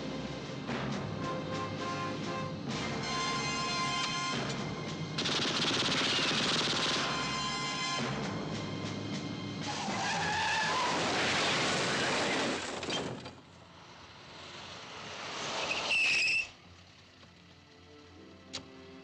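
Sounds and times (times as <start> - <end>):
tyres squealing and skidding: 9.6 - 13.4, 14.7 - 16.8.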